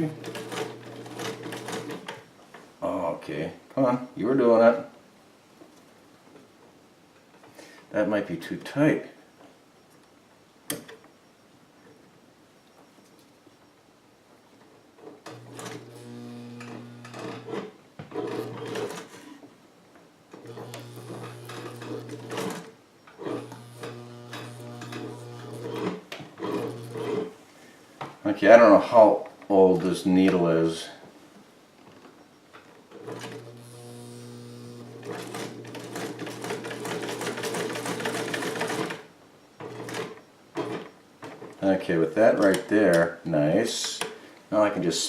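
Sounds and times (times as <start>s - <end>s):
sewing machine motor humming: 15.3s - 19.1s, 20.4s - 27.3s, 33.0s - 39.0s.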